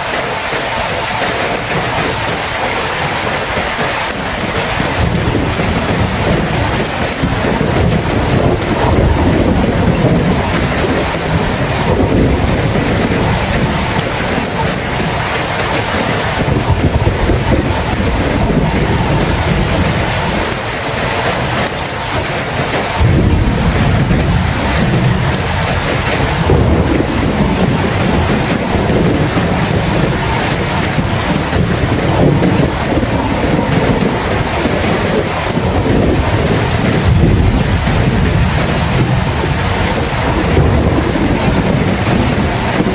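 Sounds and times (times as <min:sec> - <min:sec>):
heavy rain: 0:00.0 - 0:42.9
thunder rumbling: 0:00.0 - 0:42.9
low rumble: 0:23.0 - 0:33.4.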